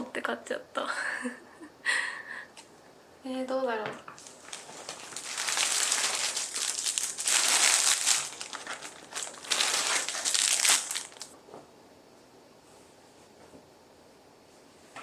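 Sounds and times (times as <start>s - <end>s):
plastic packaging crinkling: 4.2s - 11.4s.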